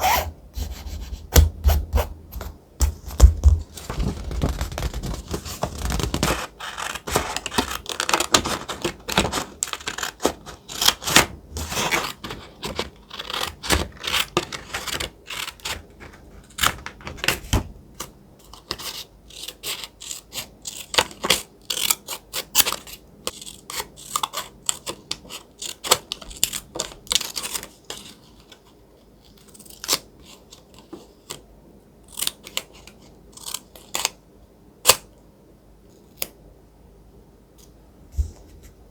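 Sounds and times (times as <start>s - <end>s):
crisp paper clicks and taps: 2.4s - 13.0s
thick paper crinkling and rustling: 2.4s - 17.7s.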